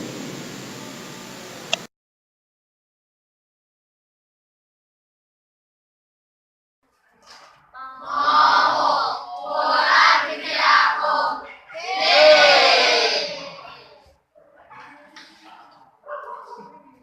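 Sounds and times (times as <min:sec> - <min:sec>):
students shouting in unison: 0:07.9 - 0:14.0.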